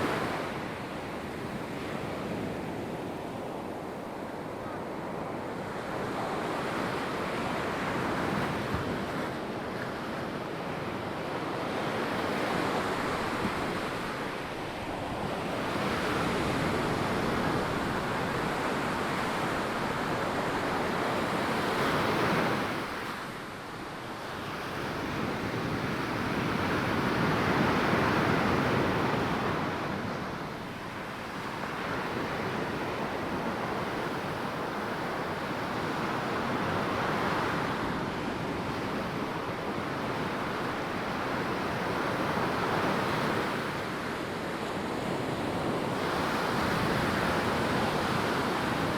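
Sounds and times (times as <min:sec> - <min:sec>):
ocean surf breaking on beach: 0:00.0 - 0:48.9.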